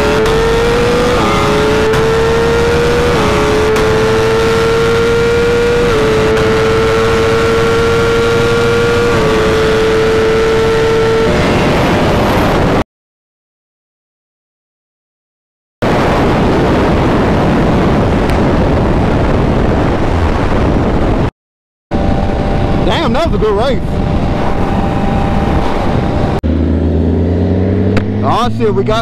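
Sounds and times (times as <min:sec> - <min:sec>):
motorcycle engine at full throttle: 0:00.0 - 0:12.8, 0:21.9 - 0:29.0
rush of wind noise: 0:00.0 - 0:12.8, 0:15.8 - 0:21.3, 0:21.9 - 0:29.0.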